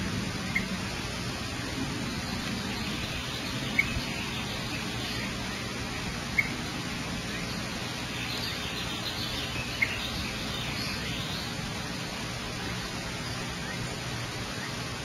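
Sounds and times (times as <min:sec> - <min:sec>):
background hiss: 0:00.0 - 0:15.0
bird chirps: 0:00.5 - 0:00.8, 0:02.1 - 0:06.6, 0:07.3 - 0:14.8
sharp bird chirps: 0:07.3 - 0:12.0.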